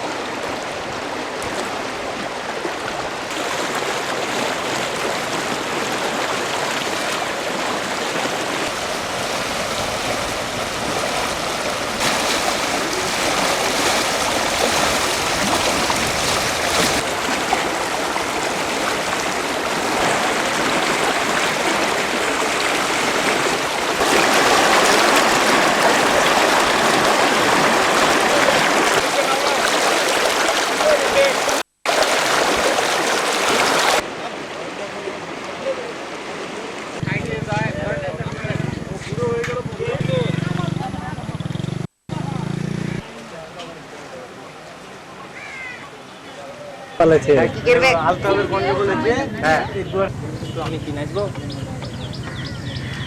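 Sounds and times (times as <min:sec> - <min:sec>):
floodwater rushing: 0:00.0 - 0:37.9.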